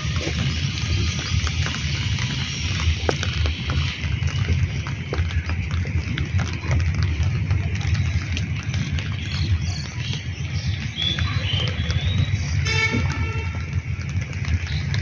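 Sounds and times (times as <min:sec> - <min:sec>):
heavy rain falling: 0:00.0 - 0:15.0
low rumble: 0:00.0 - 0:15.0.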